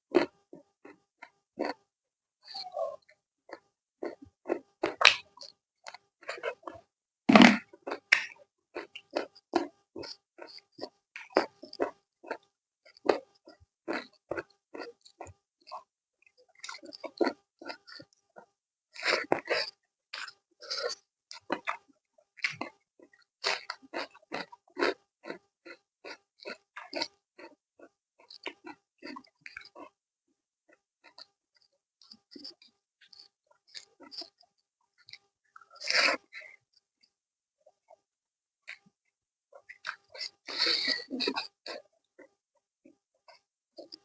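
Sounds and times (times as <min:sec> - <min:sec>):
person chewing wetly: 0:07.3 - 0:12.4, 0:23.4 - 0:25.4, 0:31.1 - 0:31.3, 0:39.7 - 0:42.3
wet chewing and lip-smacking: 0:21.4 - 0:25.4, 0:31.1 - 0:36.2, 0:39.7 - 0:42.3.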